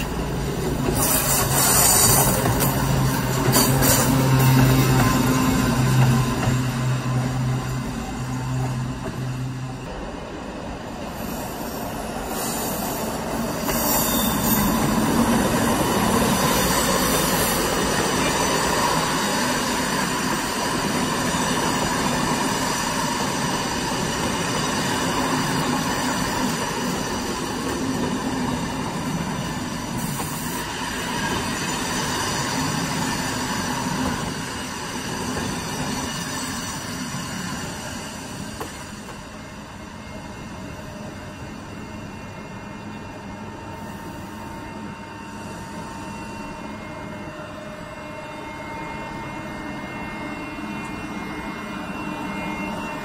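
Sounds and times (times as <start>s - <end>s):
train wheels rumbling on rail: 0.0s - 53.0s
wheel squeal: 11.4s - 19.4s.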